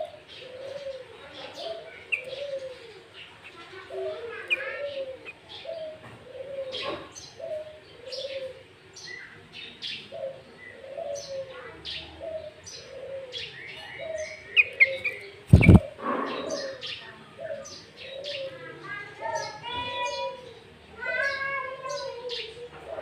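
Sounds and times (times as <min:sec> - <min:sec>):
low cooing: 0:00.0 - 0:03.1, 0:03.9 - 0:08.8, 0:10.1 - 0:18.8
bird chirping song: 0:00.0 - 0:23.0.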